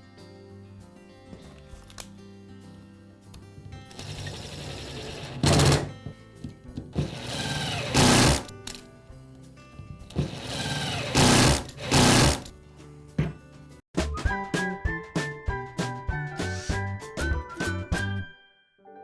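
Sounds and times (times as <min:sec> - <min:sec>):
background music: 0:00.0 - 0:19.0
power screwdriver motor whine: 0:07.1 - 0:08.5, 0:10.3 - 0:12.5.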